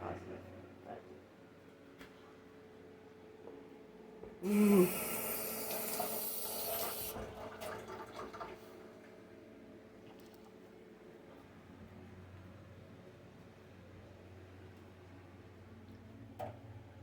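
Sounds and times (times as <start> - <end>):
water tap running: 4.4 - 8.6.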